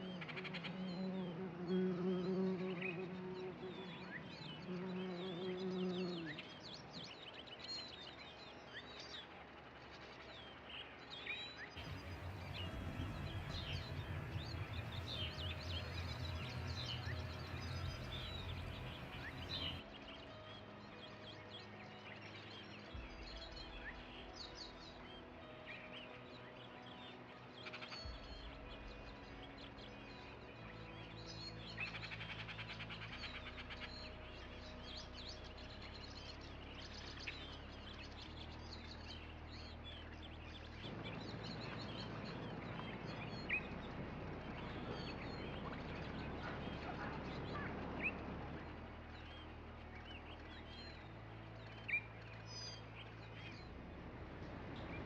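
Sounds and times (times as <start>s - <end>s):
birds chirping and calling: 11.8s - 19.8s
low rumble: 11.8s - 19.9s, 40.6s - 55.0s
low steady hum: 11.8s - 21.0s, 32.9s - 55.0s.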